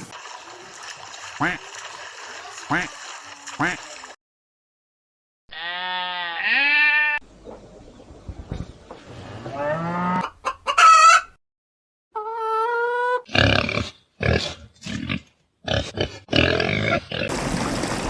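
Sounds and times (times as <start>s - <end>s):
chickens calling: 7.3s - 11.4s, 12.2s - 13.2s
chicken clucking harshly: 9.5s - 11.4s, 12.2s - 13.3s.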